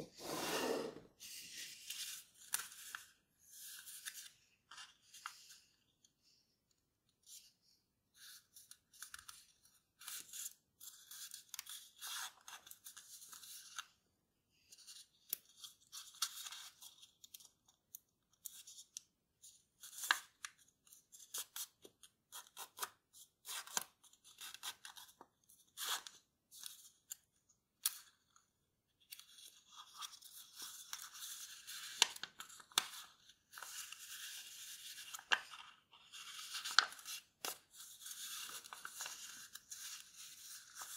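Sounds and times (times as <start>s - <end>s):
paper rustling and crinkling: 29.0s - 40.9s.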